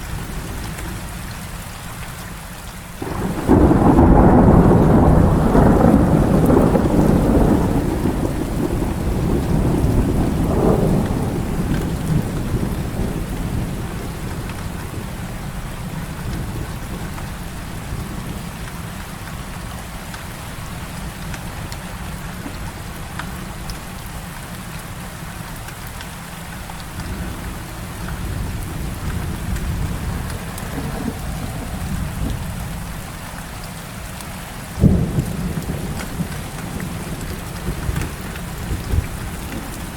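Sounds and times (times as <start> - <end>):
heavy rain falling: 0.0 - 39.9
sharp thunder crack: 3.0 - 13.8
low roll of thunder: 3.0 - 18.6, 26.8 - 33.2, 34.8 - 39.9.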